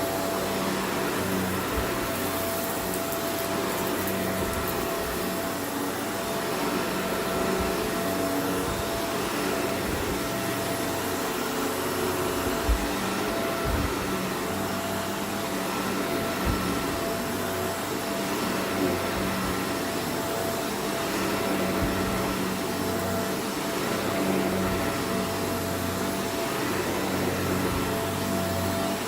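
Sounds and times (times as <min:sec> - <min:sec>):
grit crackling in vacuum: 0:00.0 - 0:11.5
vacuum cleaner running: 0:00.0 - 0:29.0.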